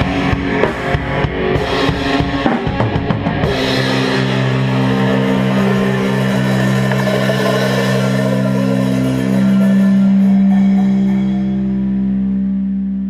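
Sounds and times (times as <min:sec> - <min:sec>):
cymbal wash: 0:03.4 - 0:12.7
held guitar and bass chord: 0:03.4 - 0:13.0.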